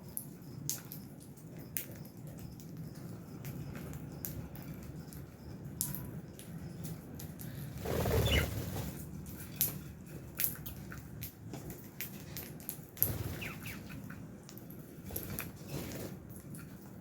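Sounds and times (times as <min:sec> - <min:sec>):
birds clicking and tapping: 0:00.1 - 0:17.0
flurry of wingbeats: 0:07.6 - 0:09.1, 0:13.0 - 0:14.2, 0:15.0 - 0:16.6.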